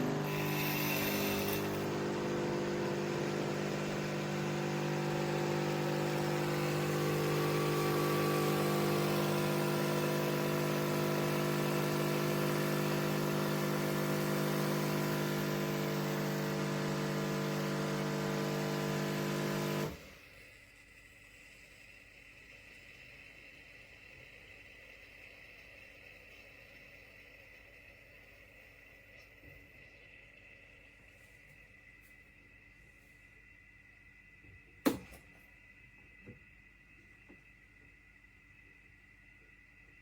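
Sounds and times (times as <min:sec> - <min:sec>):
espresso machine humming: 0:00.0 - 0:30.9.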